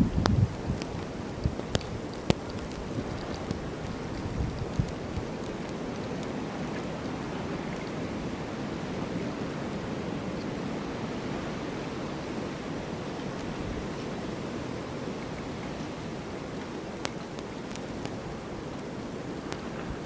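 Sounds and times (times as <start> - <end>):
snowstorm wind blowing: 0.0 - 20.0.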